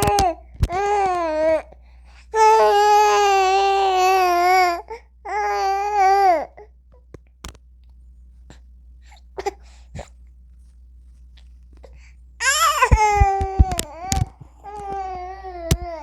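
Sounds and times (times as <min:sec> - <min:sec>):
baby crying high-pitched: 0:02.4 - 0:06.5, 0:12.4 - 0:16.0
baby soft sounds: 0:12.4 - 0:16.0.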